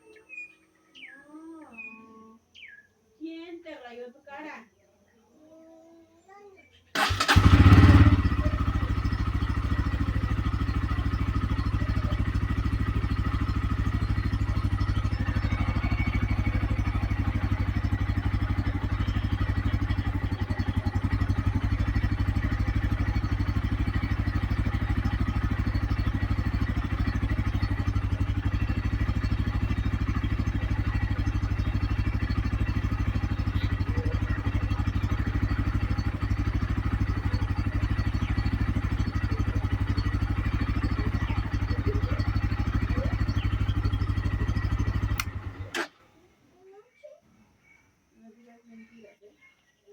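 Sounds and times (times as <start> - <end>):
motorcycle engine idling: 6.9 - 46.2.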